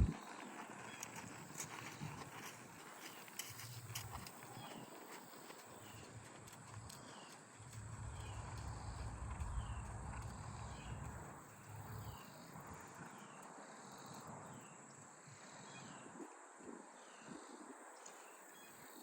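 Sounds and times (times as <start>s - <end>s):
low wind rumble: 0.0s - 0.2s, 6.8s - 12.8s.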